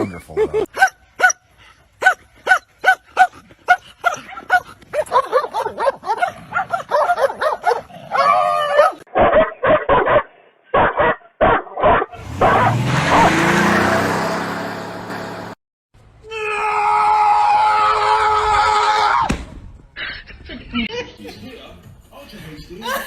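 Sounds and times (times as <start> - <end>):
dog barking and yipping: 0.7 - 13.3.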